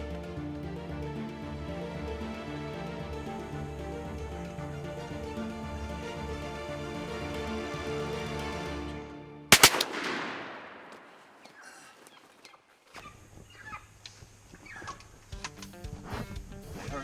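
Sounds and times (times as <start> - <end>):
background music: 0.0 - 10.8
shotgun shots echoing: 9.5 - 11.7.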